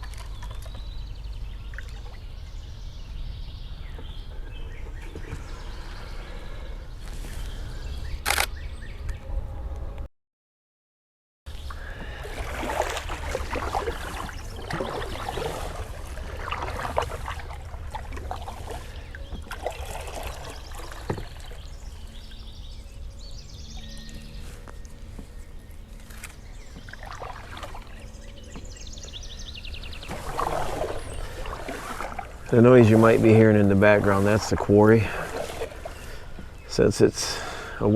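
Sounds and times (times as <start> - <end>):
canoe paddle strokes: 3.9 - 7.9, 11.5 - 37.9
water splashing and dripping: 11.7 - 22.5, 26.7 - 37.6.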